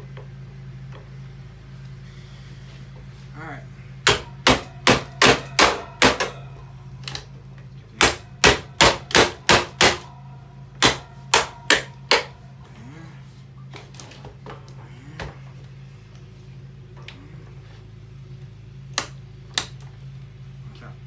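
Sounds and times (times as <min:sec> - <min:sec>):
steady low hum: 0:00.0 - 0:21.0
hammer striking metal fan: 0:04.0 - 0:07.2, 0:08.0 - 0:12.5
metallic ringing: 0:04.2 - 0:07.0.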